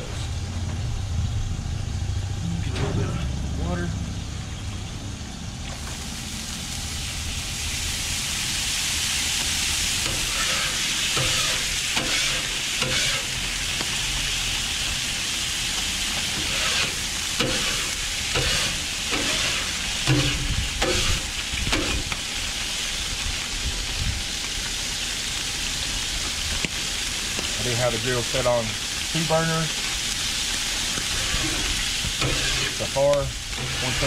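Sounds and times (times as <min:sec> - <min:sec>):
water sizzling on hot griddle: 0:00.0 - 0:34.0
brush scrubbing griddle: 0:31.1 - 0:34.0.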